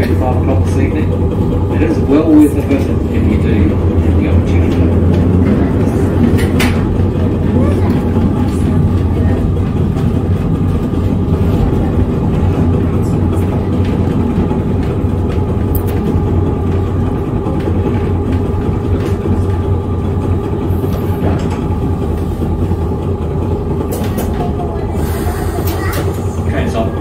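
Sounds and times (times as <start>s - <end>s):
electric tram rumbling on rails: 0.0s - 27.0s.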